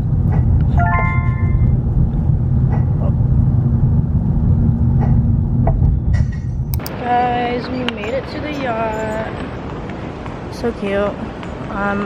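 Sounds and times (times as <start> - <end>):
short high ringing tone: 0.8 - 1.8.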